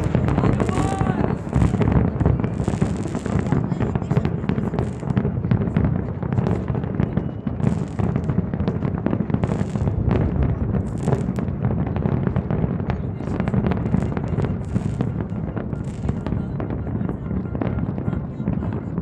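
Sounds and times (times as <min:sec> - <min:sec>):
fireworks booming: 0:00.0 - 0:19.0
fireworks crackling: 0:00.0 - 0:19.0.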